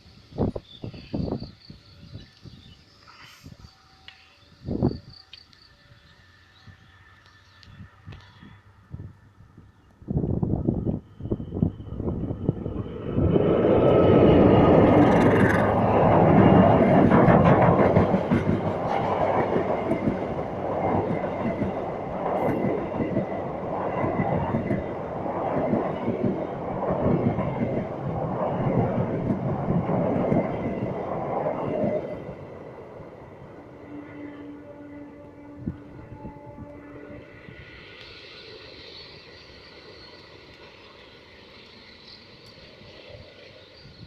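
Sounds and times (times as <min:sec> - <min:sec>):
train passing: 0:00.0 - 0:44.0
carriages clattering over rails: 0:12.8 - 0:32.0.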